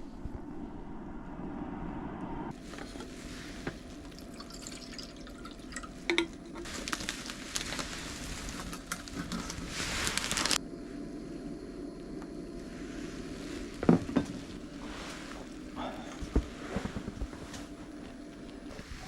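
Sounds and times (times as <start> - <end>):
water trickling and splashing: 2.6 - 10.5.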